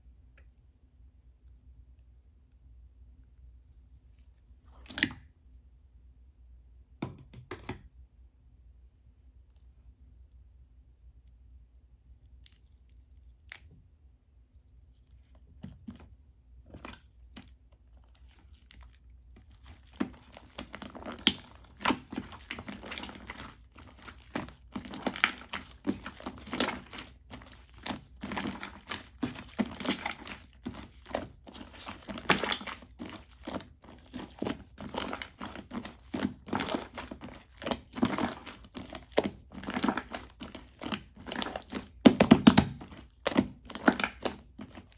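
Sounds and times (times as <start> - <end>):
slime crackling and popping: 19.4 - 44.8.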